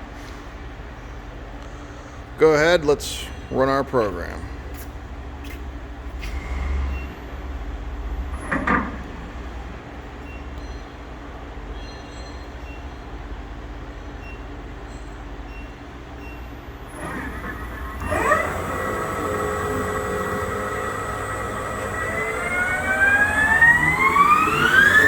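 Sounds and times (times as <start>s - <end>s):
lathe whine spinning up: 16.6s - 25.0s
lathe humming: 16.7s - 25.0s
machine clatter: 16.8s - 25.0s.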